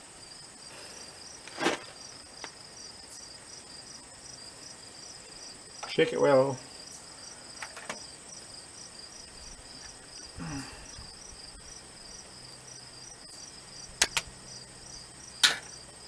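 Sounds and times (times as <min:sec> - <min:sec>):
crickets chirping: 0:00.0 - 0:16.0
sharp clicks: 0:14.0 - 0:14.3.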